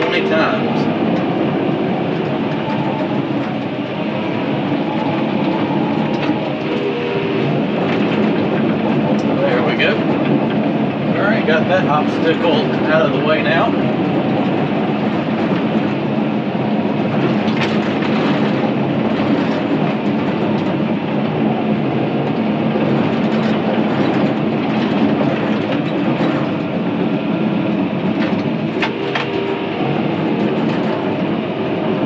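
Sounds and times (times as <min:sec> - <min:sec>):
bulldozer engine and tracks: 0:00.0 - 0:32.0.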